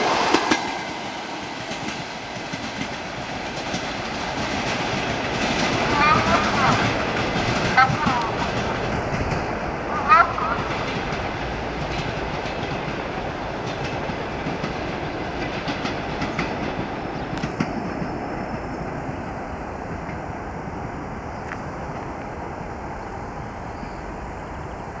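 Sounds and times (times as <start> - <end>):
wheels clattering over rail joints: 0.0 - 18.1
train coaches rolling: 0.0 - 25.0.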